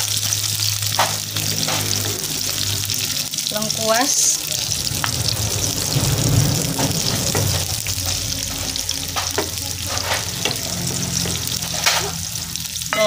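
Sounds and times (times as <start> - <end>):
vegetables sizzling in hot oil: 0.0 - 13.0
wooden spatula scraping pan: 4.7 - 12.2.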